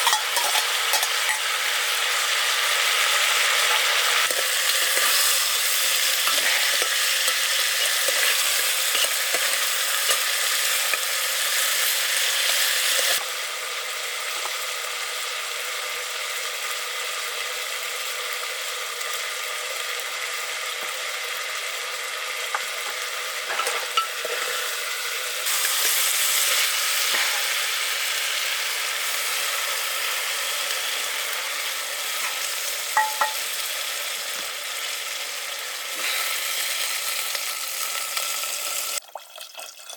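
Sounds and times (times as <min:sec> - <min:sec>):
clinks of stirring: 0:00.0 - 0:01.4, 0:33.0 - 0:33.4
curry sizzling in a pan: 0:00.0 - 0:39.9.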